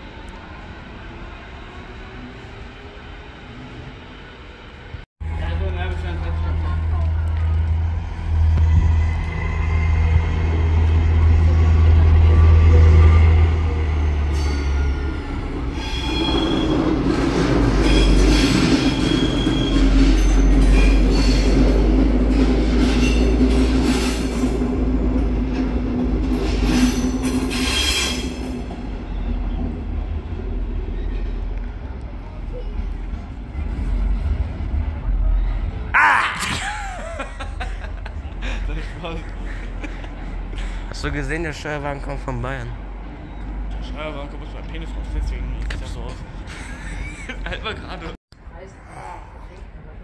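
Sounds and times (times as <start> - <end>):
train wheels rumbling on rails: 0.0 - 35.9
locomotive engine humming: 3.5 - 27.6, 36.9 - 48.2
high wheel squeals: 12.7 - 17.1, 17.7 - 21.6, 26.7 - 29.7.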